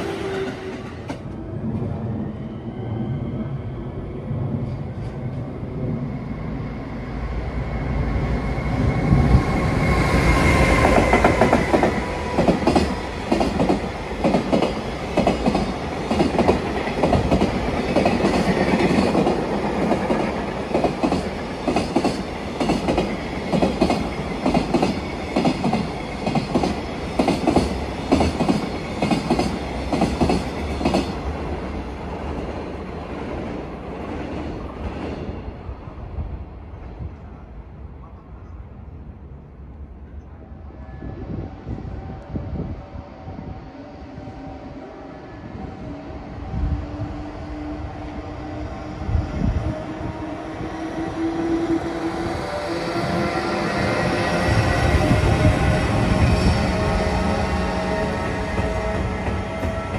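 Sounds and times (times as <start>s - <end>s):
electric locomotive passing: 0.0s - 59.9s.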